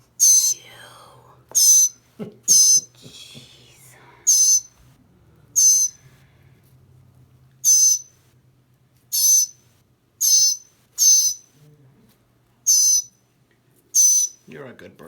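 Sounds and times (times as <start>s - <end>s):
bird giving harsh raspy calls: 1.6s - 2.9s, 4.3s - 4.7s, 5.6s - 6.0s, 7.6s - 8.1s, 9.1s - 9.6s, 10.2s - 11.4s, 12.7s - 13.1s, 14.0s - 14.4s.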